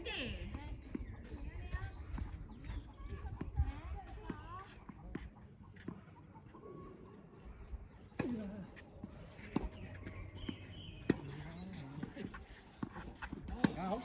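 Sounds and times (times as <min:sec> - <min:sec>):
faint voices: 0:00.0 - 0:14.0
tennis ball hit by rackets: 0:08.2 - 0:08.5, 0:12.0 - 0:14.0.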